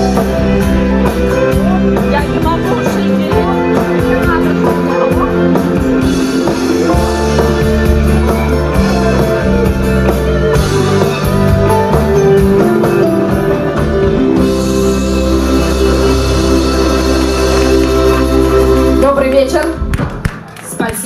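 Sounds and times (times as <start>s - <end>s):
rock band playing live: 0.0s - 20.2s.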